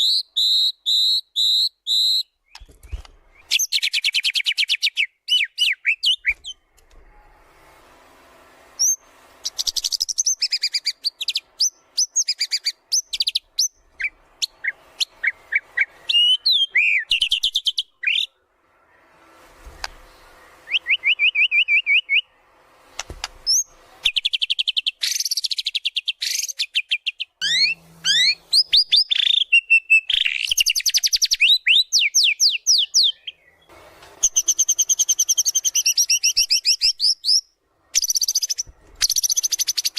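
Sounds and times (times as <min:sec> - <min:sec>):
bird singing trills: 0:23.5 - 0:39.9.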